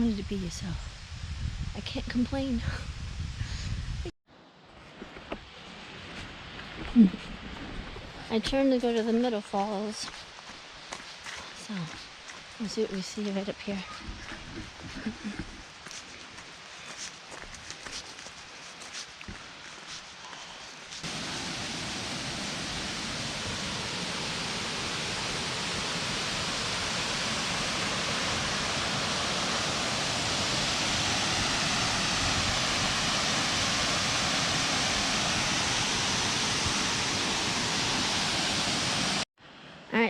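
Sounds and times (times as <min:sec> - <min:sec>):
waterfall rushing: 0:21.0 - 0:39.2.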